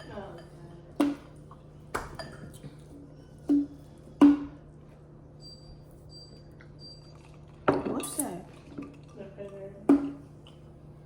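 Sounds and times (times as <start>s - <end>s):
dishes and utensils clinking: 0.0s - 1.2s, 2.0s - 2.9s.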